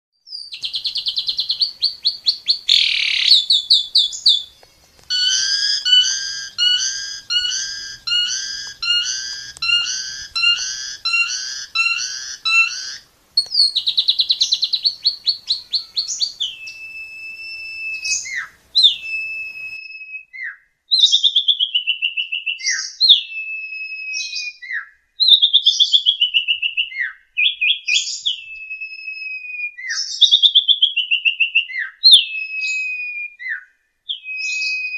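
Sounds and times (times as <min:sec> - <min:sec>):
starling singing: 0:00.3 - 0:19.9.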